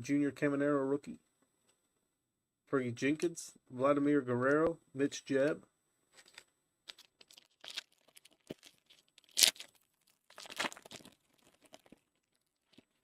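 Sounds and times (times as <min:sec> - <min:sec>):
wrapper crinkling: 0:06.2 - 0:13.0
foil wrapper ripping: 0:06.3 - 0:13.0.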